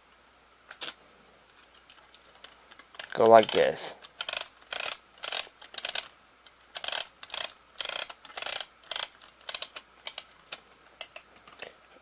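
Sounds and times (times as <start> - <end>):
tape reel clicking: 3.0 - 6.1, 6.8 - 10.3.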